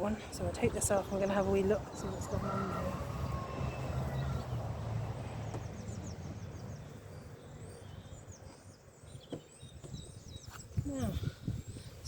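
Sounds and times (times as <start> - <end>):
small bird chirping: 5.4 - 12.0.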